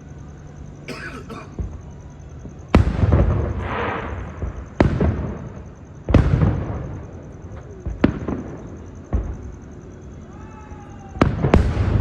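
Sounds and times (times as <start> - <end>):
fireworks booming with echo: 0.9 - 12.0
firework crack: 2.6 - 12.0.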